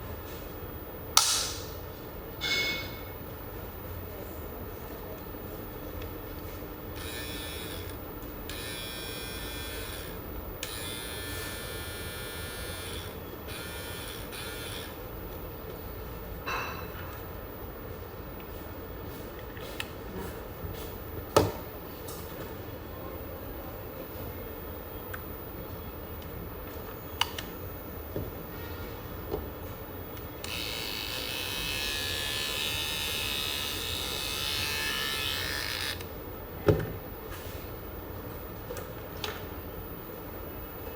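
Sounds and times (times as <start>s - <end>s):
trimmer motor buzzing: 7.0s - 7.9s, 8.5s - 15.0s, 30.4s - 36.1s.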